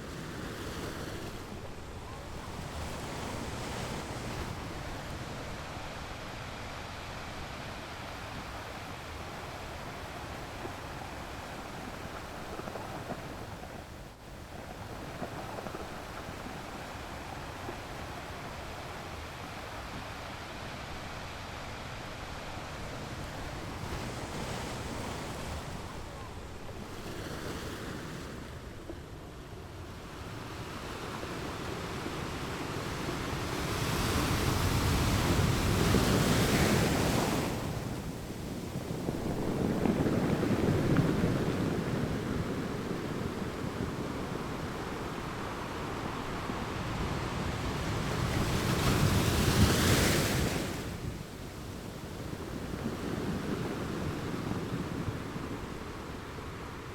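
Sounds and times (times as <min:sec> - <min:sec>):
waves breaking on rocks: 0:33.7 - 0:56.9.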